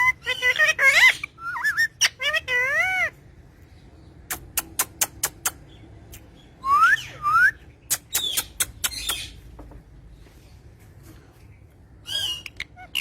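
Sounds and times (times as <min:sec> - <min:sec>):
parrot clicking chatter: 0:04.3 - 0:05.6, 0:07.9 - 0:09.4.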